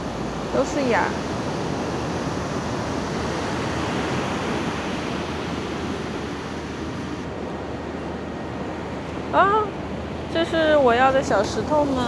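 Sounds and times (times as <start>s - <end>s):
ocean waves washing onto beach: 0.0s - 12.0s.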